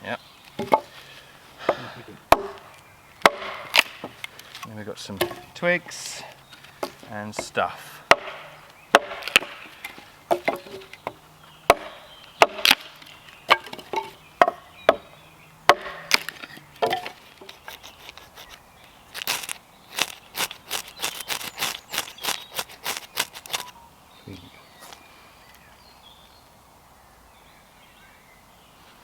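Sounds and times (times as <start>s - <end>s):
wood cracking: 0.4s - 15.1s, 15.7s - 23.8s
wood being struck: 0.5s - 0.9s, 1.6s - 4.2s, 5.1s - 6.0s, 6.8s - 18.6s, 19.2s - 23.8s.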